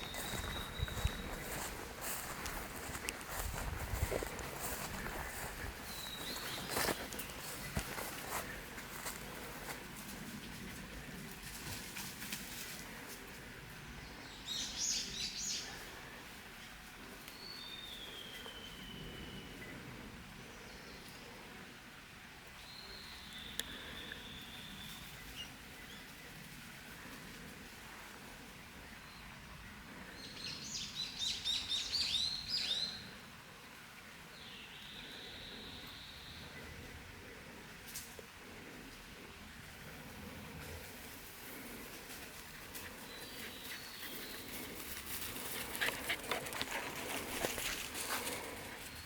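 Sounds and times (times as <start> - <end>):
songbird singing: 0.0 - 9.1, 17.2 - 20.0, 22.6 - 26.4, 28.8 - 33.2, 34.0 - 37.0, 42.4 - 49.0.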